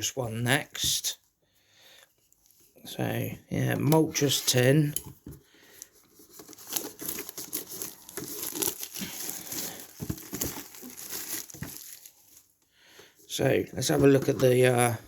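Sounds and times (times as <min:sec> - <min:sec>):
plastic packaging crinkling: 0:05.8 - 0:12.6.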